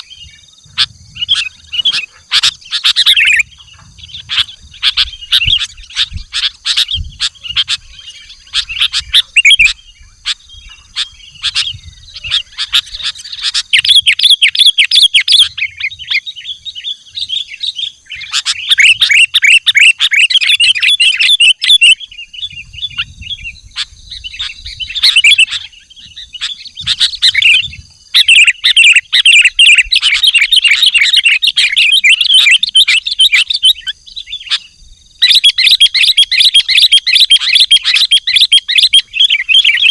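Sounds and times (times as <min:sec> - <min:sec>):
bird singing in chattering bursts: 0:00.0 - 0:39.9.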